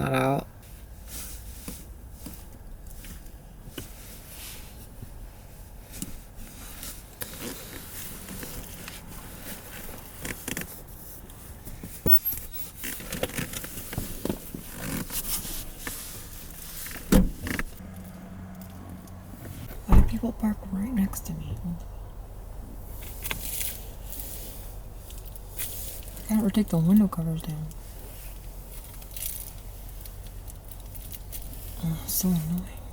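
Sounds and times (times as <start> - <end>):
things rustling and scraping in car: 0.6 - 21.6, 22.6 - 32.9
loud thump: 19.5 - 20.2.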